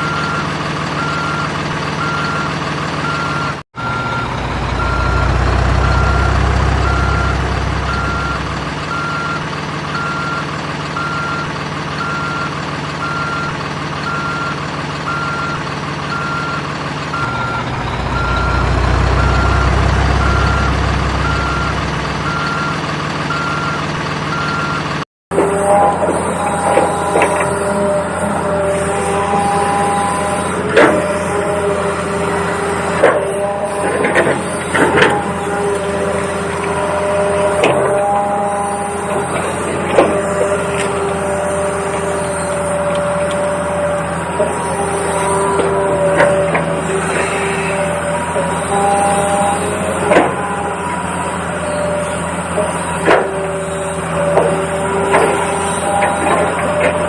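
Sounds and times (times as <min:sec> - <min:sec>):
electronic reversing beeps: 0:00.0 - 0:24.9
electronic engine drone: 0:00.0 - 0:57.0.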